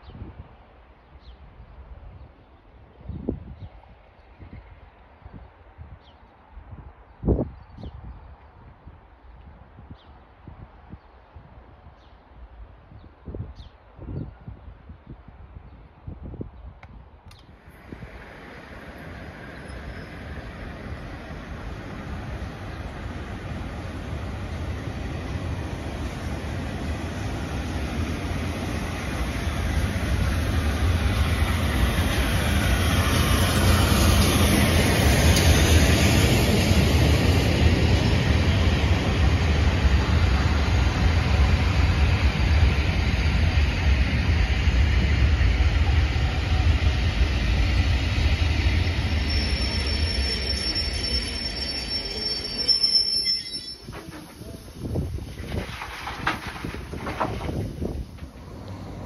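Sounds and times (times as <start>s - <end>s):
train wheels rumbling on rail: 17.2s - 59.0s
train brakes squealing: 18.2s - 22.0s, 48.3s - 56.6s.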